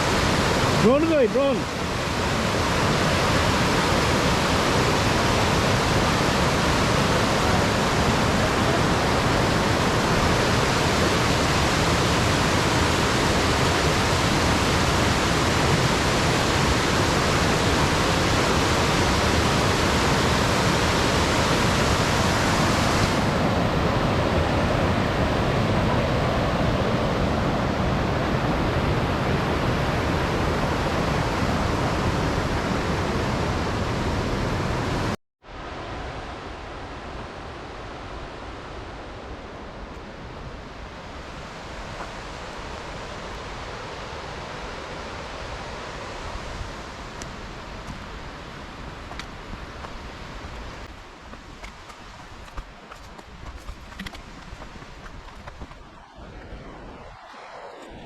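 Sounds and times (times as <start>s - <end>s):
rush of falling water: 0.0s - 38.8s.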